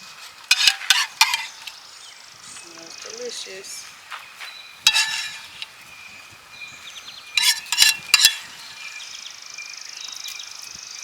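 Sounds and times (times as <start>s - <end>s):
metal utensil scraping a pan: 0.5s - 1.8s, 4.9s - 5.7s, 7.4s - 8.8s.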